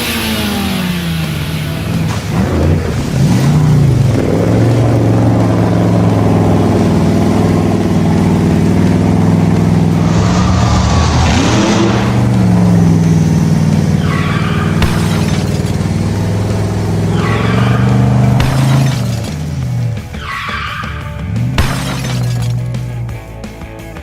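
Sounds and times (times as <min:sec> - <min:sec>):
hiss: 0:00.0 - 0:02.7
monster truck engine running: 0:00.0 - 0:24.0.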